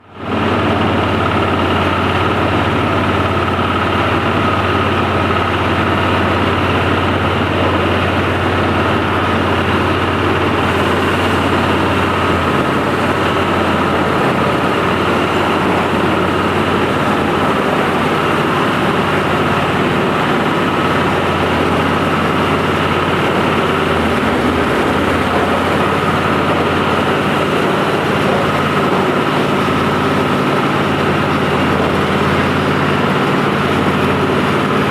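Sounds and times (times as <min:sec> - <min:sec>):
steady machine whine: 0:00.0 - 0:34.9
thresher engine drone: 0:00.0 - 0:34.9.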